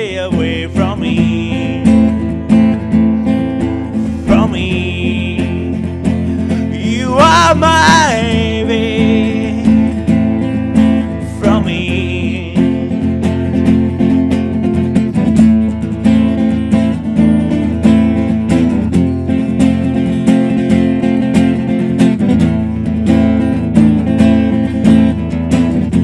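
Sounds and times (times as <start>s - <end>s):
acoustic guitar strumming chords: 0.0s - 26.0s.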